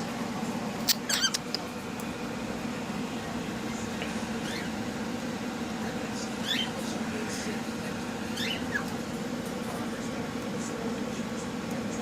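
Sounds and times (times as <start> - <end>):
steady low hum: 0.0 - 12.0
cockatiels chirping: 0.9 - 1.6, 4.4 - 4.9, 6.3 - 6.8, 8.3 - 9.0.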